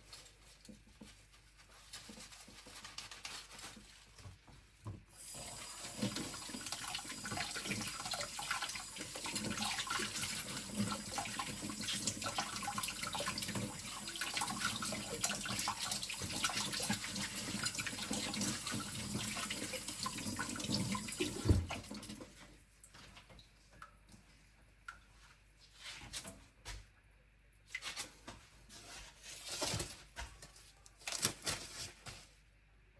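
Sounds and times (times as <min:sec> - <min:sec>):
tap running into sink: 0:15.2 - 0:22.2.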